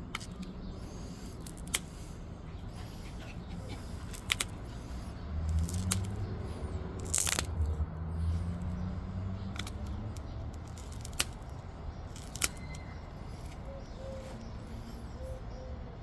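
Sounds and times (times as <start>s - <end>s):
sharp clicks of stone flaking: 0.0s - 2.1s, 3.8s - 8.8s, 9.5s - 13.8s.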